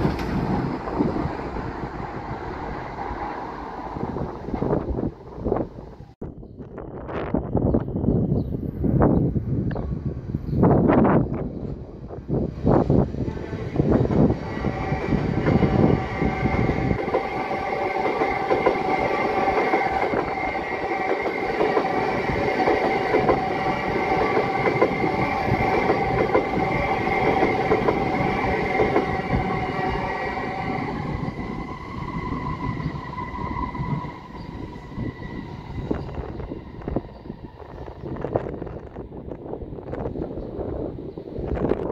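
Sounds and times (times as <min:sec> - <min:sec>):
train wheels rattling over rails: 0:00.0 - 0:05.8, 0:13.2 - 0:39.0
train high whine: 0:00.0 - 0:41.9.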